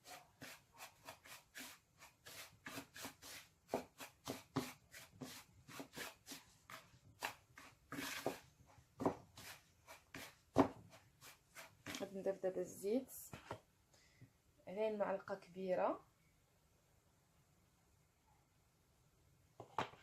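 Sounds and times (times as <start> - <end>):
semolina rubbing in a bowl: 0.0 - 8.4.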